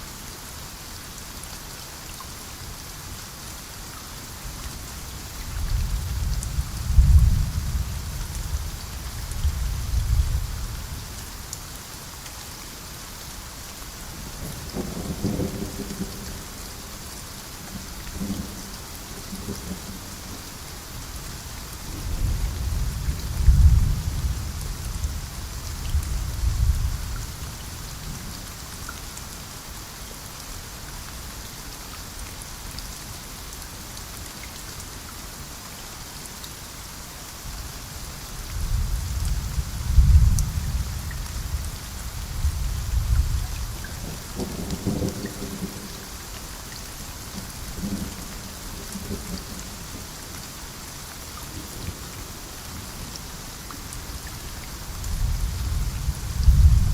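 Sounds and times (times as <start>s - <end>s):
steady rain: 0.0s - 56.9s
thunder rumbling: 55.1s - 56.9s.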